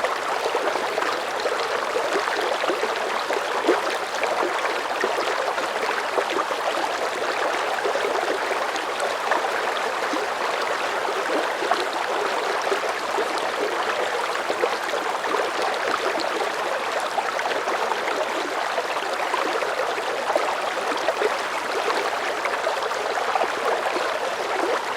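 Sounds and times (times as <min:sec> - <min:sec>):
river water flowing: 0:00.0 - 0:24.9.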